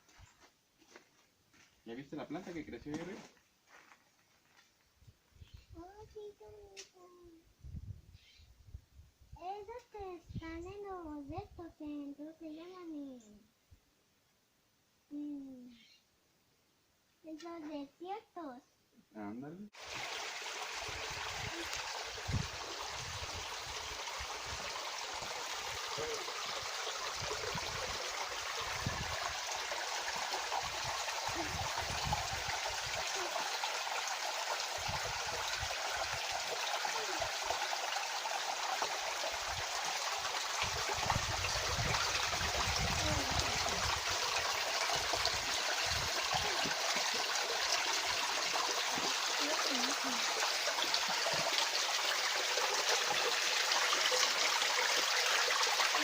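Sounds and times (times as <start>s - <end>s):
stream rushing over rocks: 19.8s - 56.0s.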